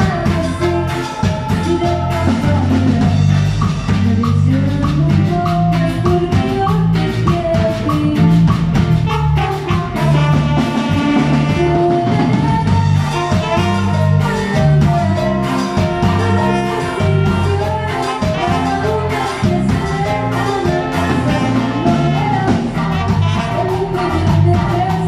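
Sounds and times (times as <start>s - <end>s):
instrumental band music: 0.0s - 25.0s.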